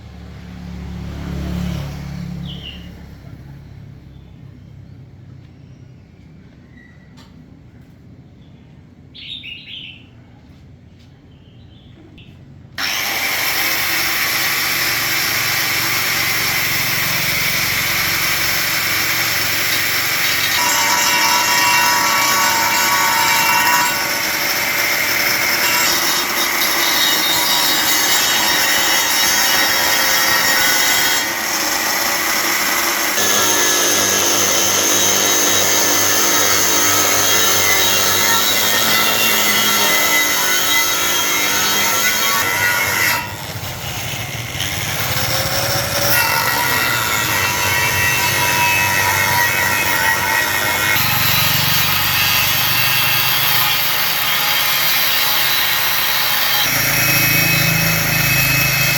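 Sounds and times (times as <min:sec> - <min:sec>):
power tool running: 0:12.8 - 0:58.9.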